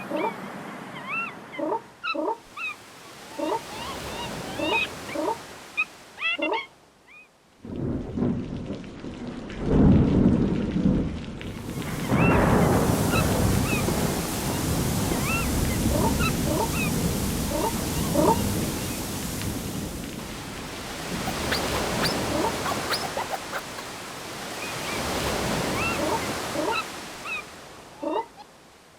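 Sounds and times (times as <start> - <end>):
heavy rain: 7.5 - 27.8
thunder rumble: 7.7 - 18.6.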